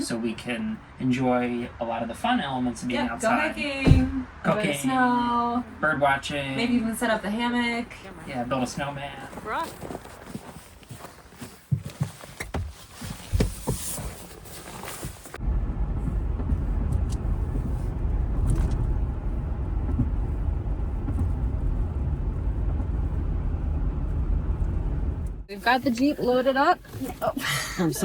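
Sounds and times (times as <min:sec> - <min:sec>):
car interior road and engine rumble: 0:00.0 - 0:09.6, 0:11.8 - 0:28.0
light knocks and handling: 0:11.4 - 0:15.2.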